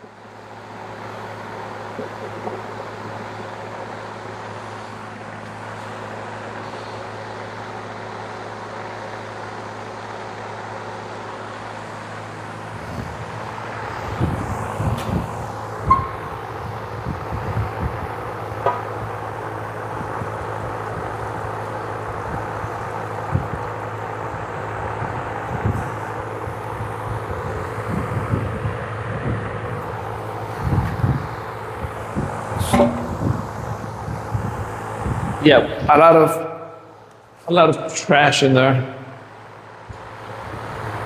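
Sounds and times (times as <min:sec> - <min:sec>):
fuel tank clunking: 0:32.6 - 0:33.4.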